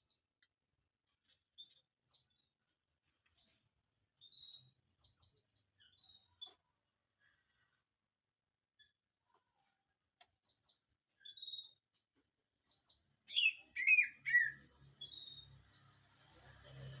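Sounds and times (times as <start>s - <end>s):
bird singing whistled notes: 11.2s - 11.8s, 12.7s - 16.0s.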